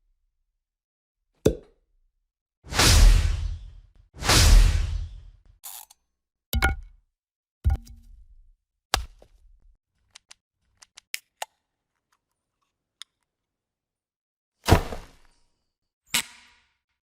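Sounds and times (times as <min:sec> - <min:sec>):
sharp hit with low thud: 0:02.7 - 0:05.3
small clicks: 0:10.0 - 0:13.3.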